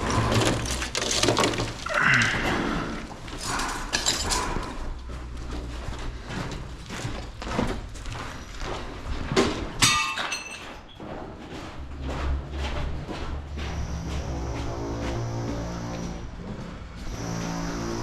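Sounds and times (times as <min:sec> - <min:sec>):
hard objects knocking: 0:00.0 - 0:02.4.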